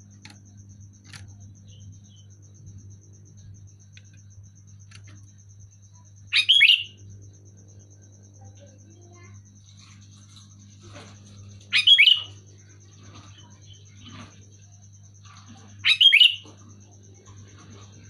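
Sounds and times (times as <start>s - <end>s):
bird calling bubbly phrases: 6.3s - 6.9s, 11.7s - 12.3s, 15.8s - 16.4s.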